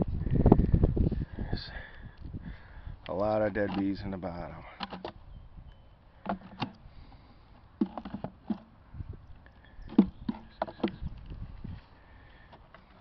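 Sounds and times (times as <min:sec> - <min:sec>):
wooden hive boxes knocking: 0:07.8 - 0:08.7, 0:09.9 - 0:11.1.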